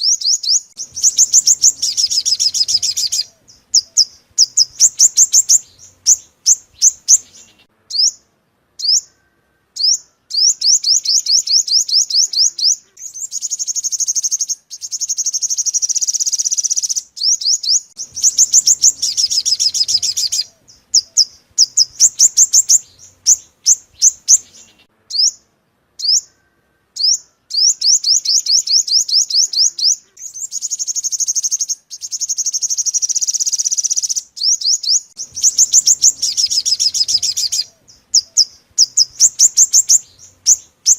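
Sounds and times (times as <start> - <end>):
buzzing bird trills: 0.8 - 8.1, 18.0 - 25.3, 35.2 - 40.9.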